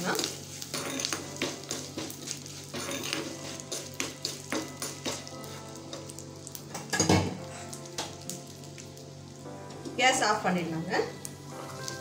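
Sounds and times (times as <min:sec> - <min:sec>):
spices sizzling in hot oil: 0:00.0 - 0:12.0
metal spatula scraping pan: 0:00.6 - 0:05.2.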